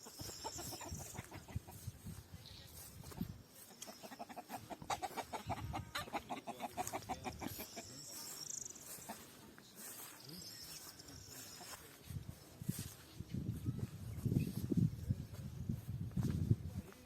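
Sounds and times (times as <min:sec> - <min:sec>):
high chirping: 0:00.0 - 0:06.1, 0:06.8 - 0:12.9
chickens clucking: 0:00.0 - 0:15.1.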